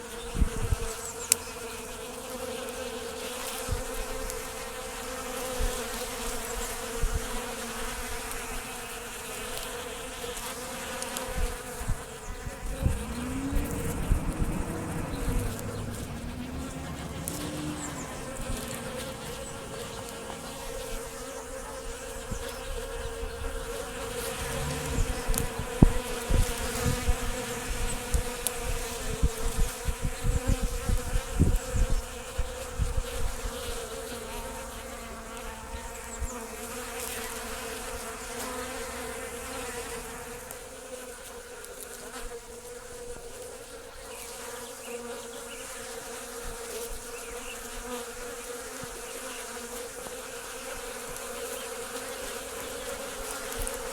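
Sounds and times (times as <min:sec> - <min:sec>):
honeybees buzzing: 0:00.0 - 0:53.9
low thumps: 0:11.8 - 0:21.2, 0:23.4 - 0:28.3.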